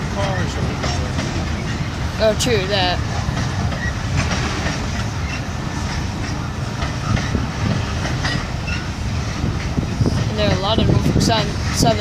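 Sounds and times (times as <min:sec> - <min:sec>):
freight train rolling past: 0:00.0 - 0:12.0
wheels clicking over rail: 0:03.0 - 0:12.0.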